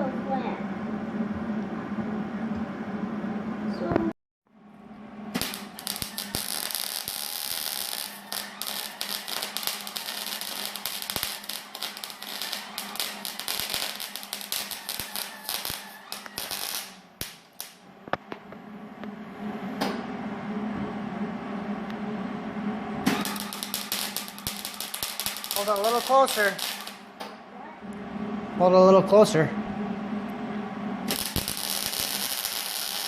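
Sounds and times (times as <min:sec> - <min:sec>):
steady hum: 0:00.0 - 0:33.0
welder arc crackling: 0:05.3 - 0:18.4, 0:23.1 - 0:27.2, 0:31.1 - 0:33.0.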